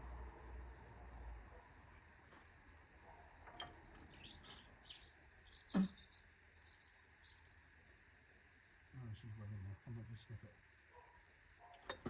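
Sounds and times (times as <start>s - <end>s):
birds chirping faintly: 3.0s - 11.9s.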